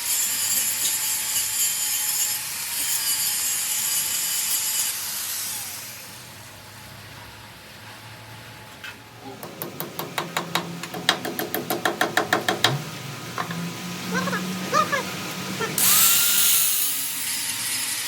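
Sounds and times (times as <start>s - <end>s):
metal-on-metal taps: 9.4s - 12.8s, 13.4s - 13.6s.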